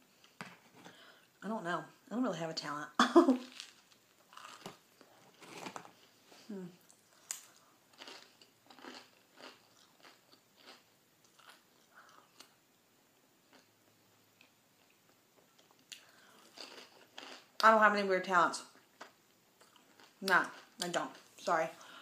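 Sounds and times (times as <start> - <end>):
person chewing and crunching: 3.4 - 6.0, 6.9 - 12.6, 14.3 - 17.7, 18.8 - 21.5.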